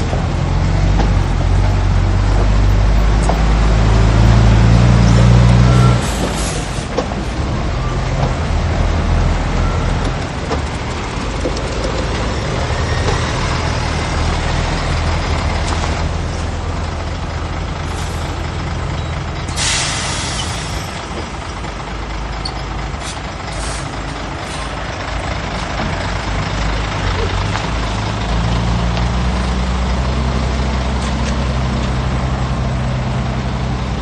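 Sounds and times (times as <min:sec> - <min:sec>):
diesel engines droning: 0:00.0 - 0:34.0
air hiss: 0:19.6 - 0:20.9.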